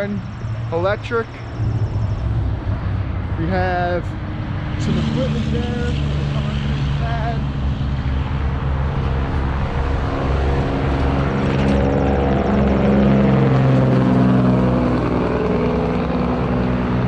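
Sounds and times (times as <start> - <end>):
large engine running: 0.8 - 17.0.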